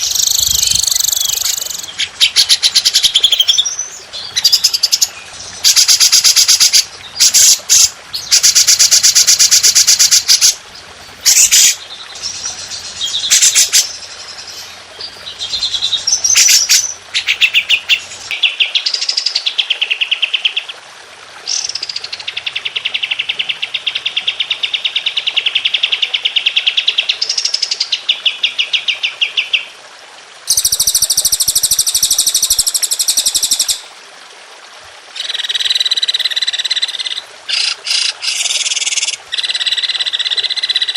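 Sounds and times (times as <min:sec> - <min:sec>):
songbird trilling song: 0:00.0 - 0:10.6, 0:11.2 - 0:19.4.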